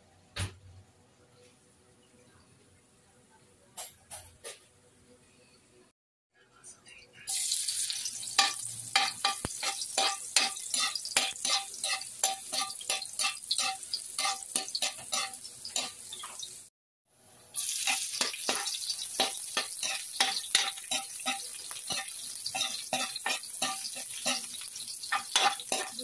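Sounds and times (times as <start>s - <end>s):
garlic and onion sizzling in oil: 7.3s - 26.0s
metal spatula scraping a wok: 8.2s - 16.5s, 17.6s - 26.0s.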